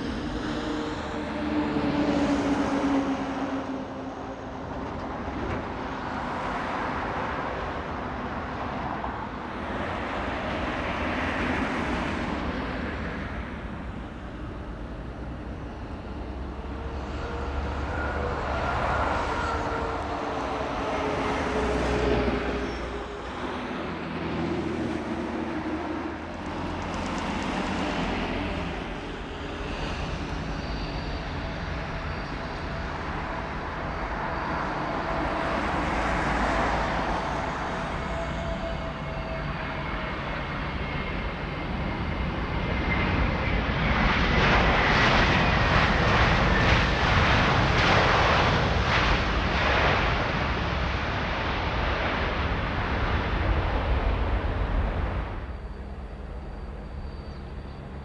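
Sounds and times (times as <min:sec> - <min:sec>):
high-pitched turbine whine: 0:00.0 - 0:58.0
jet engines roaring: 0:00.0 - 0:58.0.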